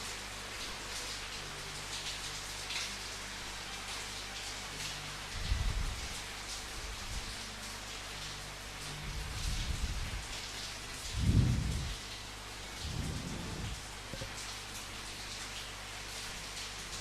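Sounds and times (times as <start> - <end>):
steady rain: 0.0 - 17.0
thunder rumbling: 11.2 - 12.0, 12.8 - 14.2.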